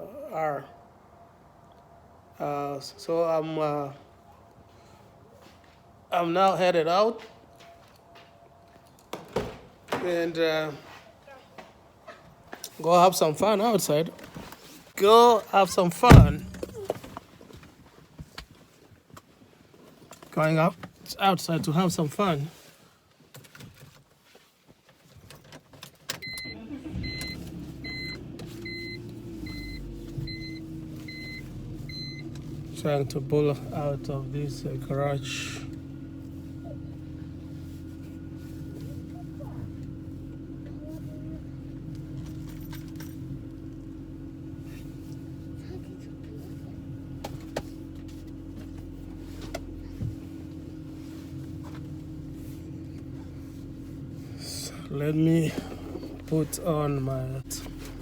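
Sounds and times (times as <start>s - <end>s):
car engine idling: 16.0s - 17.0s, 26.4s - 58.0s
low thump: 16.1s - 16.9s
two-tone dashboard warning chime: 26.2s - 32.4s.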